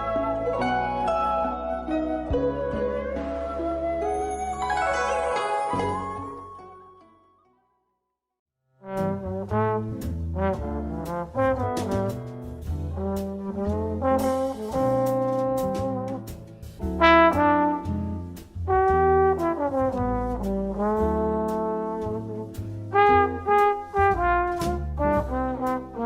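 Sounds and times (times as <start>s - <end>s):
brass band music: 8.8s - 26.0s.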